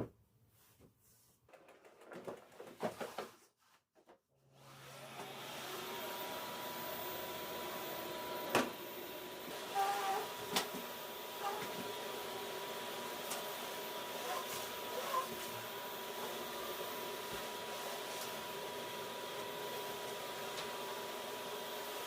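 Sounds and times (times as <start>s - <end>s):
vacuum cleaner motor whining: 4.4s - 22.0s.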